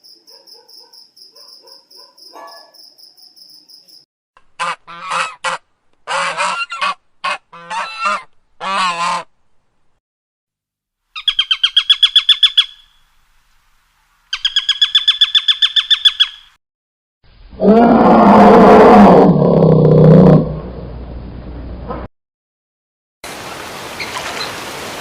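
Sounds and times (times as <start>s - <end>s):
geese honking: 4.6s - 9.3s.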